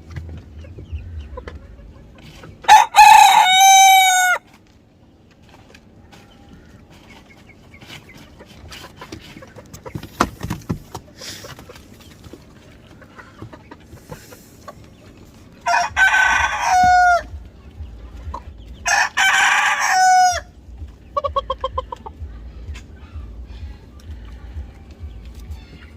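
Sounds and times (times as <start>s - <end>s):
chicken clucking: 0.0s - 25.9s
rooster crowing: 2.7s - 4.5s, 15.6s - 17.4s, 18.8s - 20.5s.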